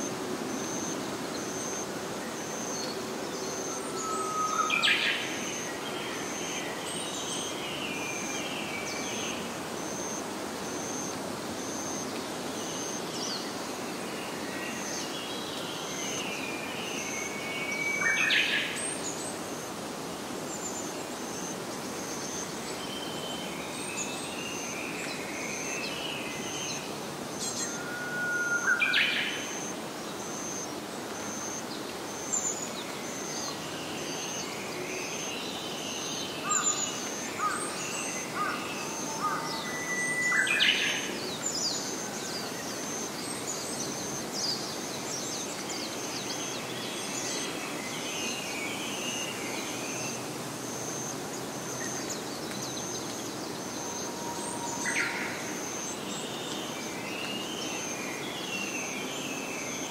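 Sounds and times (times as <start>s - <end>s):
constant hiss: 0.0s - 59.9s
birds twittering: 26.4s - 58.9s.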